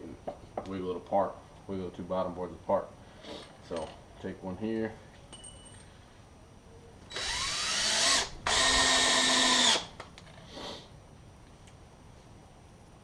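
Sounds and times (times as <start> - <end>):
screw gun driving screw into wood: 7.1 - 9.9.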